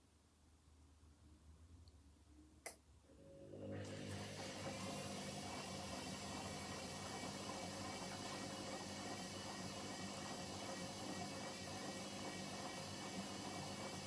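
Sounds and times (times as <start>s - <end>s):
washing machine water running: 3.2s - 14.0s.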